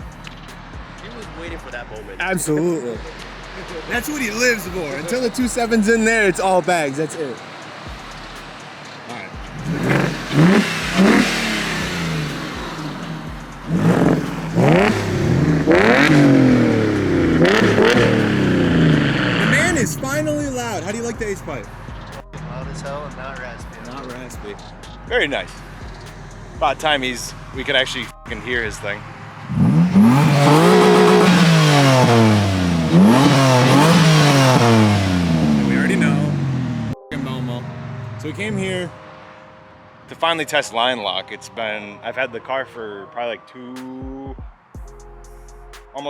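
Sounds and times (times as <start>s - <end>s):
car engine revving: 0.0s - 40.6s.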